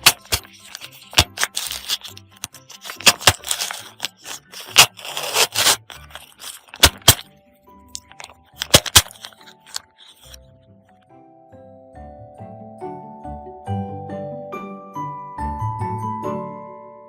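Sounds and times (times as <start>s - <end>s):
scraping and rustling: 0.0s - 7.2s, 8.0s - 10.4s
soft background music: 0.0s - 17.0s.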